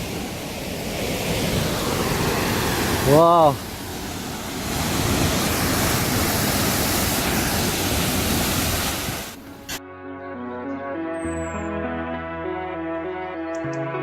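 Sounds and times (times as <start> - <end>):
waterfall rushing: 0.0 - 9.8
background music: 9.8 - 14.0.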